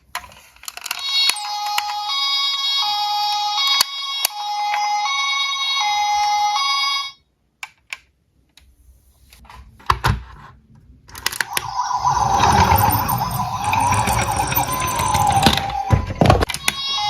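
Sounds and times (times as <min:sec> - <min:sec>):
siren wailing: 0:11.4 - 0:16.3
toy cars rolling and clattering: 0:12.0 - 0:15.8.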